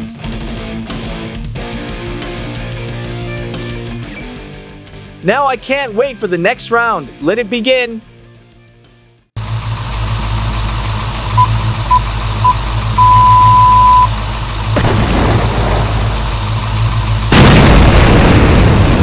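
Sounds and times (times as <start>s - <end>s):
deep engine rumble: 9.4s - 19.0s
countdown beeps: 11.4s - 14.2s.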